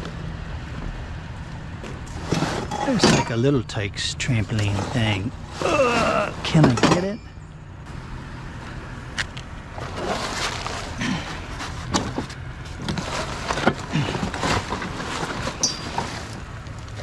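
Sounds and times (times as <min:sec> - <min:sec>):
trampoline parts clanking and rattling: 0:01.8 - 0:03.8, 0:04.4 - 0:07.5, 0:09.8 - 0:17.0.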